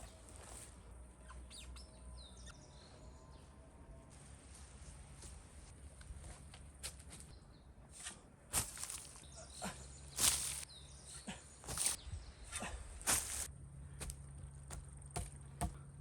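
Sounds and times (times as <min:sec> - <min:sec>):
irregular rustles and scrapes: 0:07.9 - 0:09.4, 0:10.1 - 0:14.2.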